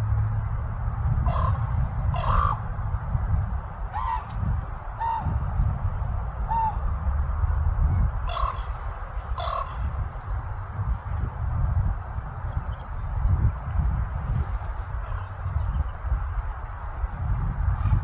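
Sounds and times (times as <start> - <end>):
steady low rumble: 0.0 - 18.0
ravens honking calls: 1.2 - 2.7, 3.9 - 4.3, 5.0 - 5.4, 8.2 - 10.0.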